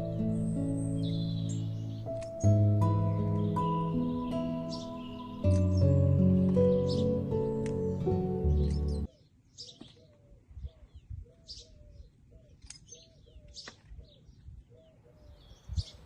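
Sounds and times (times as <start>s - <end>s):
background music: 0.0s - 9.1s
birds chirping: 0.0s - 16.0s.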